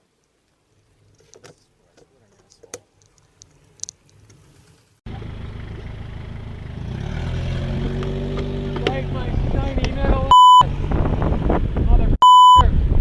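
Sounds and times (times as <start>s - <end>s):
road and traffic noise: 2.6s - 13.0s
low engine hum: 5.1s - 12.6s.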